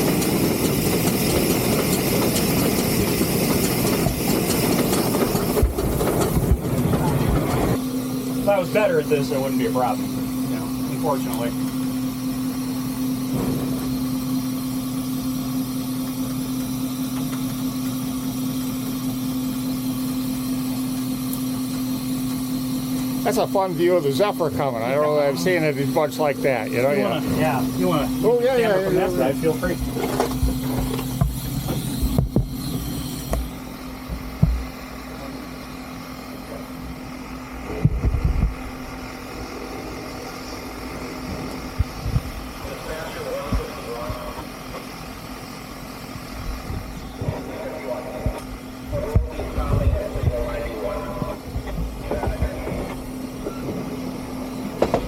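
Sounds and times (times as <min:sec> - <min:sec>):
steady mechanical hum: 0:00.0 - 0:55.0
dull low thumps: 0:29.8 - 0:32.7, 0:48.2 - 0:52.6.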